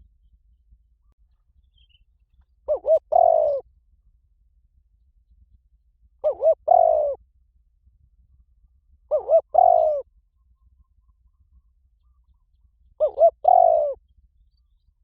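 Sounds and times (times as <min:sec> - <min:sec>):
dove cooing: 0:02.7 - 0:03.6, 0:06.2 - 0:07.2, 0:09.1 - 0:10.1, 0:13.0 - 0:14.0.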